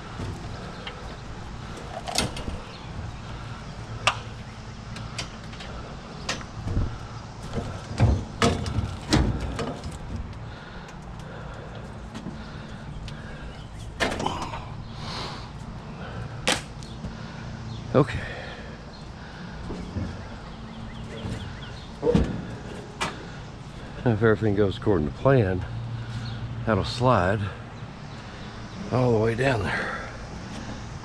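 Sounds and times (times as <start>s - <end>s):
steady low hum: 0.0s - 31.0s
heavy thuds: 6.4s - 10.7s.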